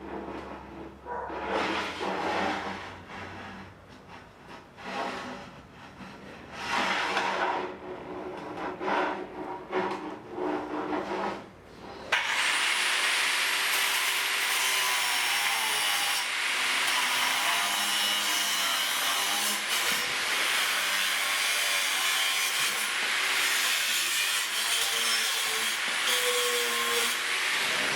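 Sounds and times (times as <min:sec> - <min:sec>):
power tool cutting wood: 0:12.1 - 0:27.9.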